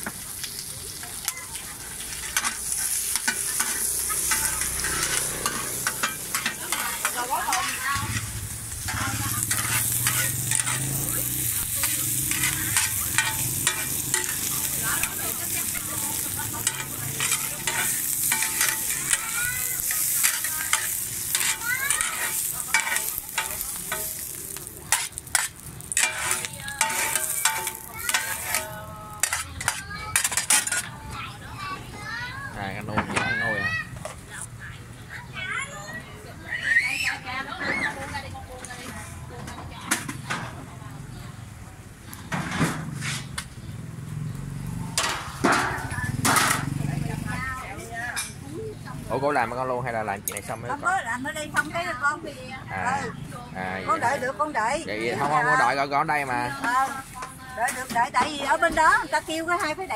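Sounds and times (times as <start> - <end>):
greens sizzling in hot oil: 0.0 - 34.6, 43.5 - 59.9
metal spatulas scraping a pan: 0.9 - 31.0, 37.4 - 39.2, 42.3 - 43.5, 44.9 - 46.8, 56.5 - 59.8.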